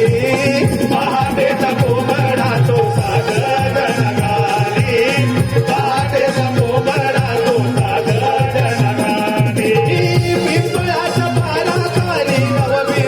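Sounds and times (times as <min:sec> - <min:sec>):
held melody line: 0:00.0 - 0:13.0
rattling percussion: 0:00.0 - 0:13.0.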